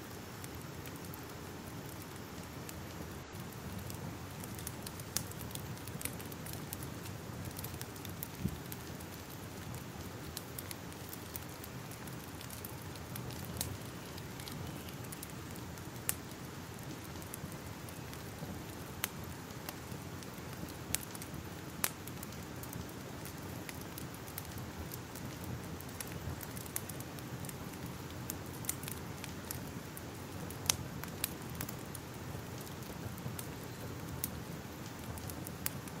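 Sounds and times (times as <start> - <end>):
fire crackling with pops: 0.0 - 36.0.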